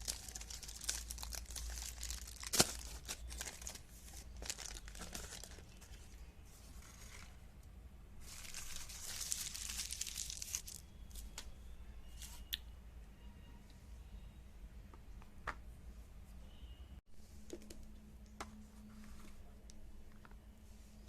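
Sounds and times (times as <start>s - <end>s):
material crinkling and tearing: 0.0s - 6.2s, 8.2s - 11.3s.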